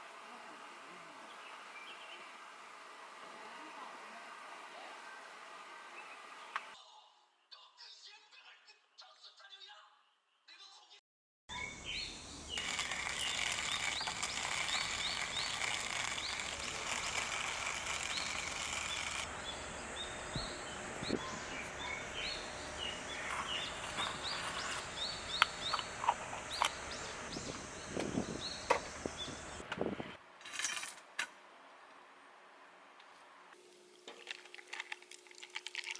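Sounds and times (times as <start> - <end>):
birds chirping: 11.5 - 30.2
steady high hiss: 11.6 - 30.2
sharp clicks and knocks: 20.1 - 29.9.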